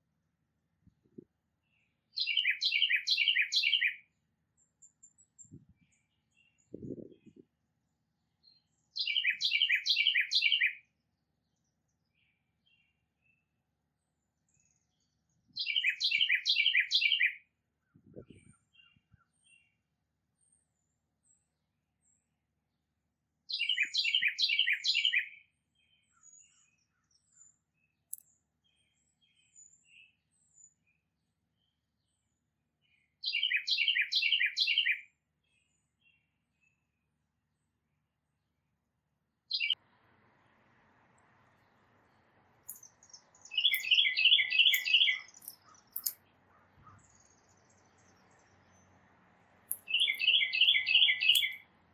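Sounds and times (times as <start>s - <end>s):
faint bird chips: 42.7s - 48.6s, 49.7s - 51.6s
songbird whistling phrase: 43.5s - 45.3s, 49.9s - 51.6s.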